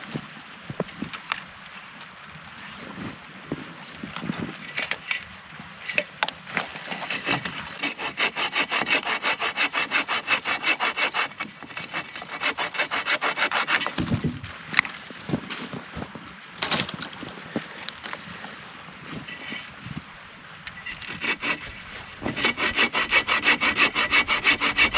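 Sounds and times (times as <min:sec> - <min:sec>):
saw cutting wood: 0:07.0 - 0:14.0, 0:21.0 - 0:24.9.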